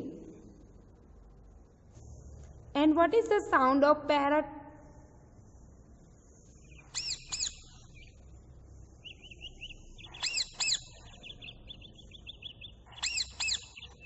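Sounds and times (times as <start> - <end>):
faint rapid chirping: 4.7 - 14.0
parrot squawks: 6.7 - 8.0, 9.6 - 14.0.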